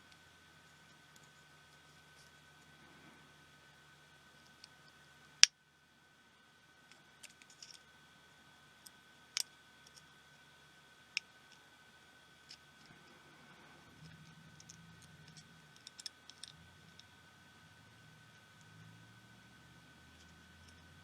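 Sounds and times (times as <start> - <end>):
small tools clicking and tapping: 14.0 - 17.1.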